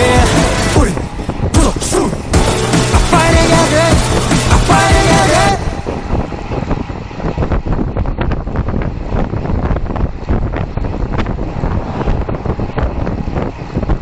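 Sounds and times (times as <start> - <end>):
wind buffeting microphone: 0.2 - 2.4, 5.5 - 14.0.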